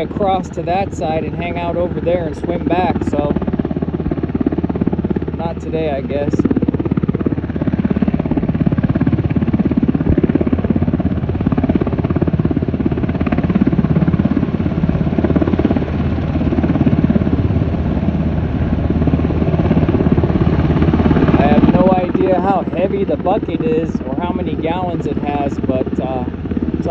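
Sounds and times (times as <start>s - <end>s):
low engine drone: 0.0s - 10.9s, 18.2s - 26.9s
helicopter rotor chopping: 0.0s - 26.9s.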